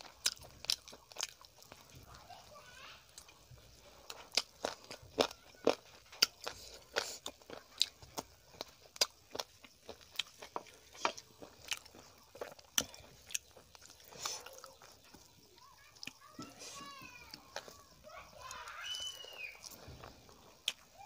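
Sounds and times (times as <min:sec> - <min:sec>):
person chewing food: 0:00.0 - 0:02.4, 0:03.0 - 0:21.0.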